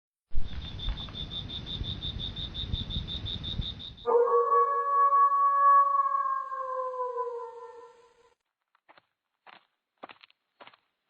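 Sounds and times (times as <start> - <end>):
crickets chirping: 0.4 - 8.3
jackal howling: 4.1 - 8.3.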